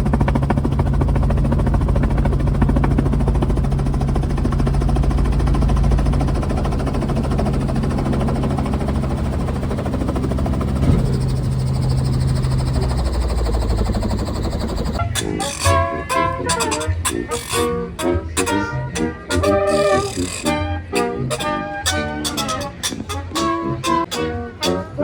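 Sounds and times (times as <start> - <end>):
helicopter engine and rotor: 0.0 - 25.0
brief knock: 10.8 - 11.2.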